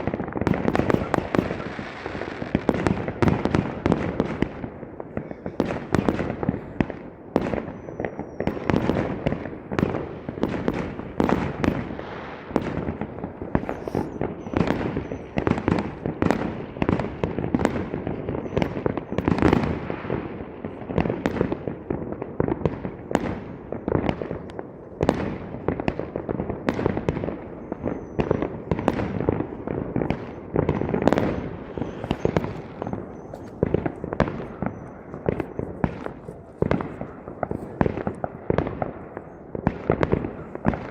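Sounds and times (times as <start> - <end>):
fireworks whistling: 0.0 - 4.4, 7.4 - 20.0, 27.0 - 39.4
fireworks bangs: 0.0 - 40.9.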